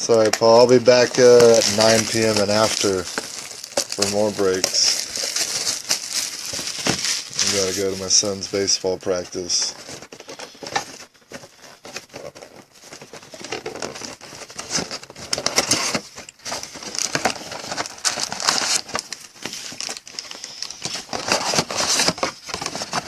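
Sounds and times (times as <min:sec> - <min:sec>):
plastic wrap crinkling and tearing: 0:00.0 - 0:23.0.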